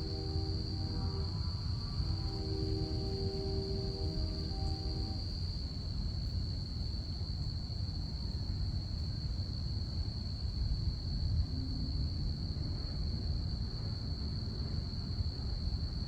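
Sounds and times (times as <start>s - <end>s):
low steady rumble: 0.0s - 6.4s
crickets trilling: 0.0s - 13.3s.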